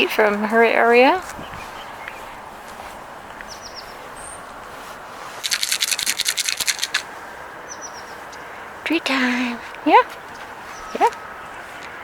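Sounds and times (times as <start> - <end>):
rapid scratchy rustling: 0.0 - 7.3.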